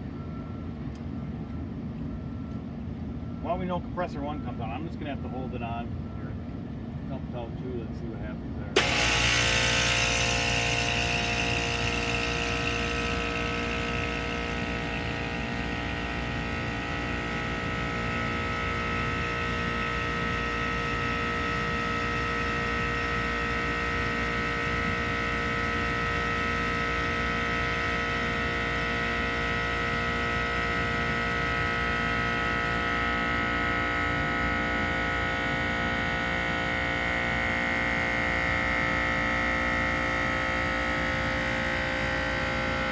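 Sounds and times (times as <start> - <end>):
air conditioning unit humming: 3.5 - 24.6.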